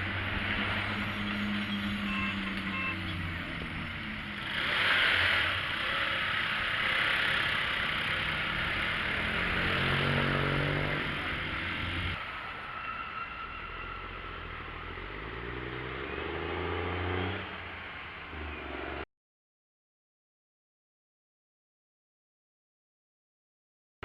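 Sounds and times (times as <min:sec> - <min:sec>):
engine speeding up: 0:00.0 - 0:12.2, 0:13.9 - 0:19.0
vehicle passing: 0:00.0 - 0:12.8, 0:13.8 - 0:19.0
vehicle engine humming: 0:00.0 - 0:19.0.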